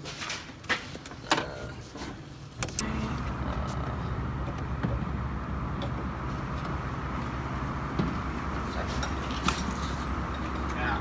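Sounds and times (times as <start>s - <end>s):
low engine rumble: 2.6s - 11.0s.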